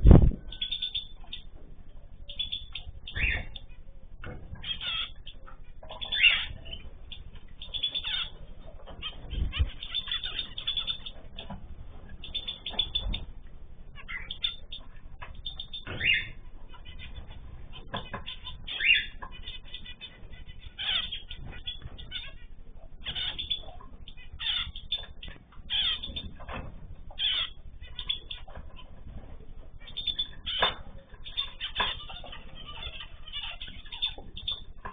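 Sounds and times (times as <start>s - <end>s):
low thumps: 0.0s - 0.6s
cage birds chirping: 0.0s - 34.9s.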